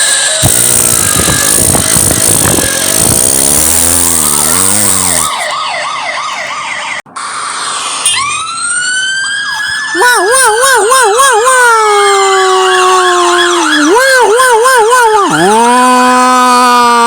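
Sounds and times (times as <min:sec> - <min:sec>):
cartoon vehicle rumble: 0:00.0 - 0:05.6
siren wailing: 0:00.0 - 0:17.0
rising siren tone: 0:00.4 - 0:16.0.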